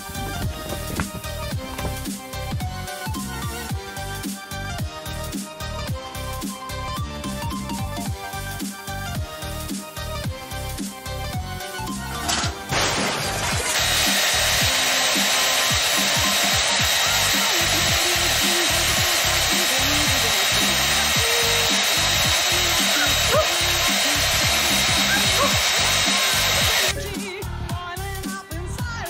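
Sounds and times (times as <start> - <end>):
hair dryer running: 12.5 - 27.0.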